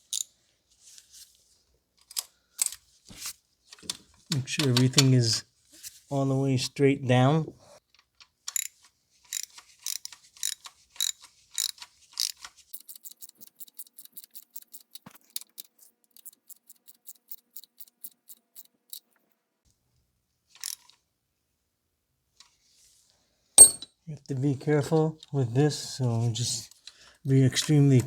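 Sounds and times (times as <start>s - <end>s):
hand ratchet clicking: 8.5s - 19.1s.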